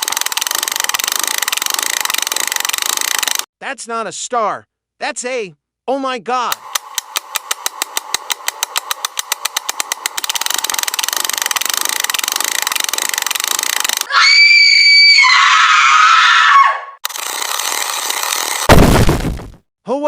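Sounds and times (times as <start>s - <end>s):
fast clicking into buzzing drone: 0.0s - 3.4s, 6.5s - 14.1s, 17.1s - 18.7s.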